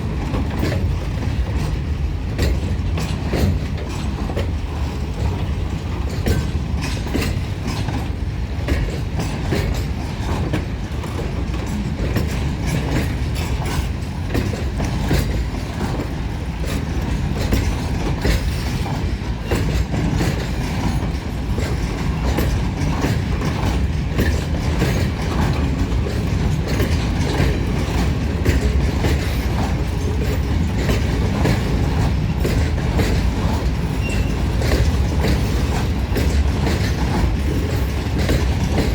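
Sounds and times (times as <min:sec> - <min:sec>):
train rumbling on rails: 0:00.0 - 0:38.9
wheels clicking over track: 0:00.0 - 0:38.9.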